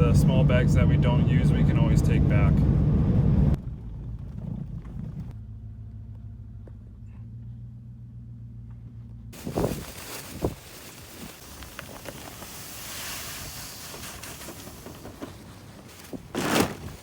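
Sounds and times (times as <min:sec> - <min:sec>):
wind buffeting microphone: 0:09.4 - 0:12.0.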